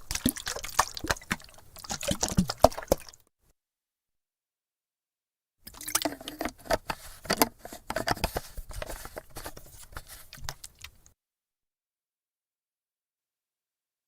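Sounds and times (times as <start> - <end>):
water sloshing in plastic canteen: 0.0 - 3.2, 5.7 - 11.0
plastic knocks and clicks: 6.0 - 9.3.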